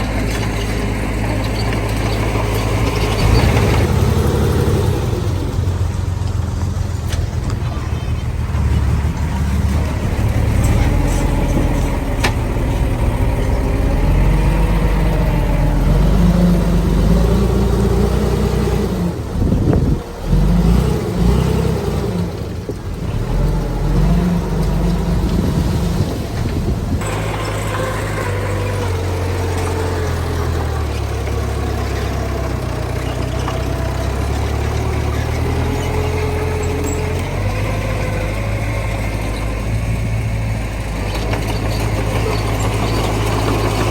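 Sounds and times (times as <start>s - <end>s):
diesel earthmoving machinery running: 0.0s - 43.9s.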